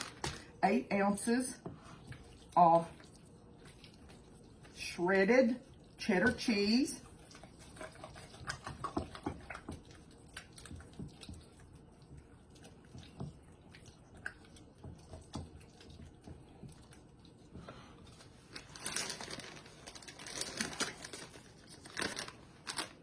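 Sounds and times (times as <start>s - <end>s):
plastic bag crinkling: 0.0s - 0.5s, 18.1s - 23.0s
soft taps and squishes of food: 1.6s - 4.8s, 5.6s - 18.4s.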